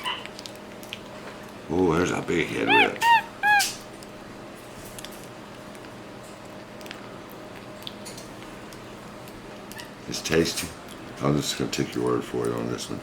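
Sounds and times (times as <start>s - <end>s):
wet chewing and smacking: 0.0s - 1.7s, 2.5s - 12.9s
monkey chirp: 2.6s - 3.8s.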